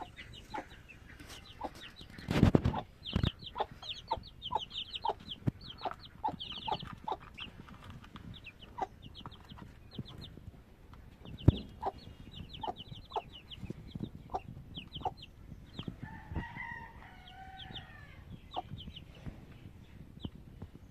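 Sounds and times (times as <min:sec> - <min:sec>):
chicks peeping: 0:00.0 - 0:20.9
drawn-out chicken call: 0:15.8 - 0:18.7.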